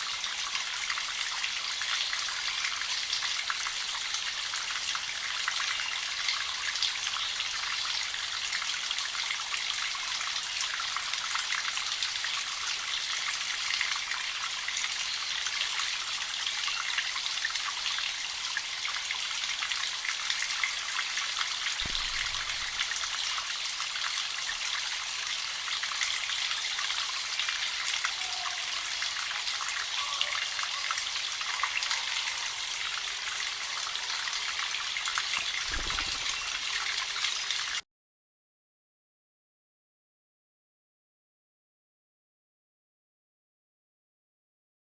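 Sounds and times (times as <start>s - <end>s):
water trickling into a pool: 0.0s - 37.8s
soft low thump: 21.8s - 22.9s.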